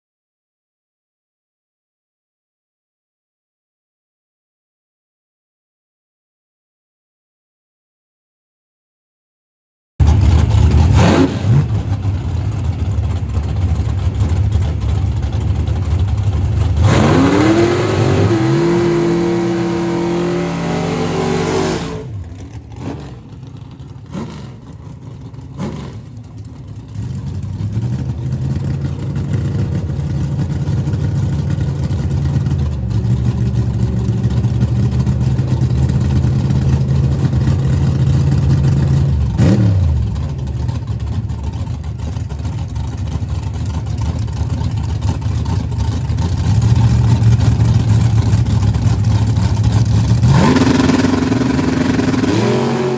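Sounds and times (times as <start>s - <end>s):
low engine rumble: 10.0s - 52.3s
drag car launching: 10.0s - 52.9s.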